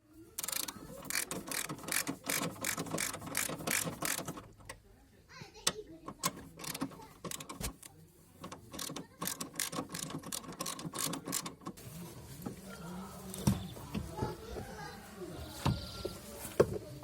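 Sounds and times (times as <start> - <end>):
ratchet wrench clicking: 0.4 - 4.5, 6.2 - 7.8, 8.4 - 11.7.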